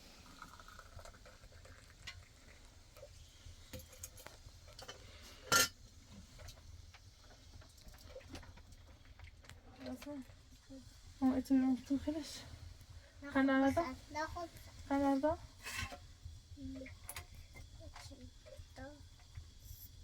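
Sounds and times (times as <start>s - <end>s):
dishes and utensils clinking: 3.8s - 5.8s.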